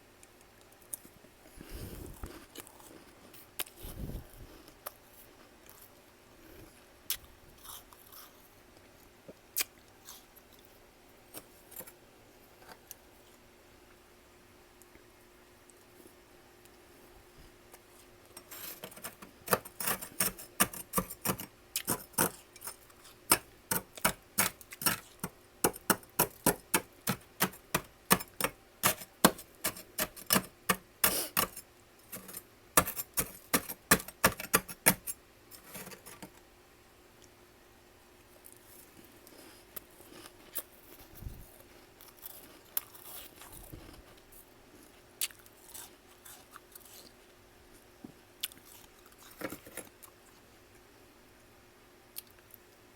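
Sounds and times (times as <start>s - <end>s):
crunchy chewing of frost: 0.8s - 12.0s, 38.2s - 47.8s, 48.4s - 50.5s.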